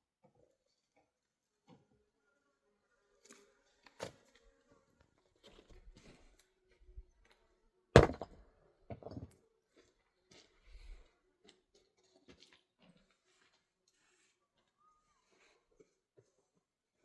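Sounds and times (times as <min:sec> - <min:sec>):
knocks and thuds: 0:08.0 - 0:08.3.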